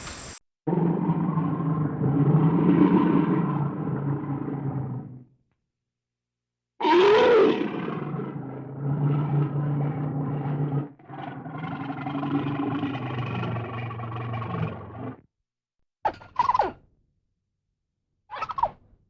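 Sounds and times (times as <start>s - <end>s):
bear growling: 0.7s - 5.3s, 6.8s - 15.2s.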